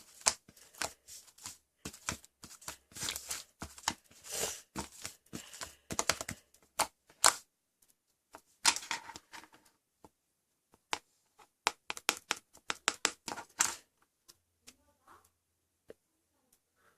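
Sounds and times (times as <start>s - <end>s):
sharp irregular clicks and taps: 11.6s - 14.8s.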